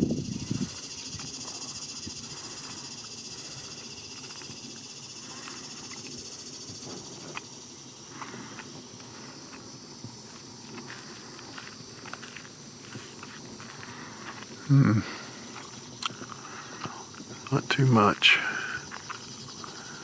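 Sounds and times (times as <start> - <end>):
insects buzzing: 0.0 - 20.0
faint ticks or chirps: 0.2 - 9.7, 18.5 - 20.0.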